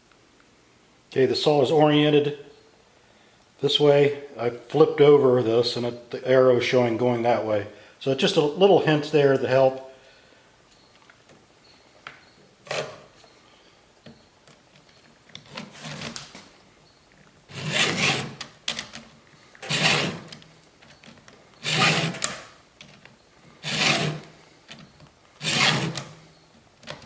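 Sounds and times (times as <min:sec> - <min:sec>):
file rasping on chainsaw chain: 0:17.5 - 0:18.4, 0:19.6 - 0:20.4, 0:21.6 - 0:22.3, 0:23.6 - 0:24.3, 0:25.4 - 0:26.1.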